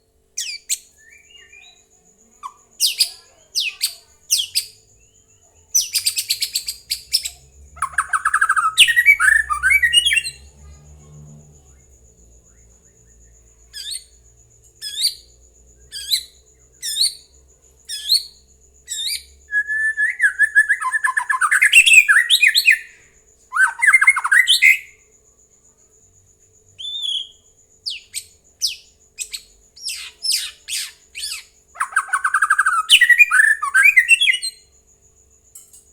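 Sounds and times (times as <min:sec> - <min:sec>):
bird singing whistled notes: 0:00.4 - 0:10.5, 0:17.9 - 0:25.0, 0:26.8 - 0:34.7.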